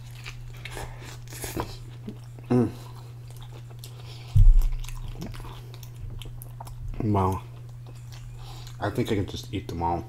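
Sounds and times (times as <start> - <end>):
chewing wet mouth sounds: 0.0 - 9.1
steady low hum: 0.0 - 10.0
person humming mm: 2.5 - 2.9
low thump: 4.4 - 4.7.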